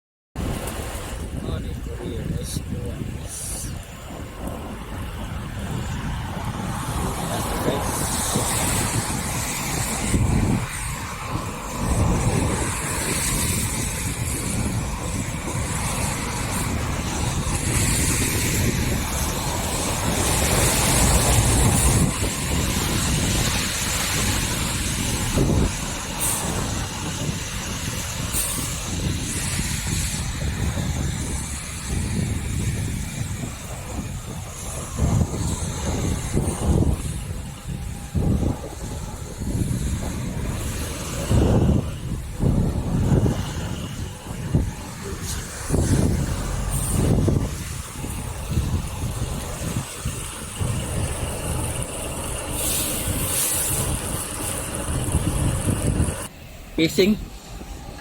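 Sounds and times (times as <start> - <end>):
vehicles passing on wet pavement: 0.4 - 58.0
rain hissing: 38.8 - 58.0.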